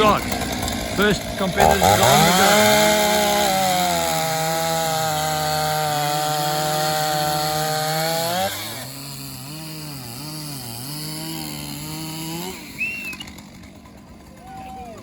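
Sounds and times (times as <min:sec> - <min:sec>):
chainsaws cutting logs: 0:00.0 - 0:15.0.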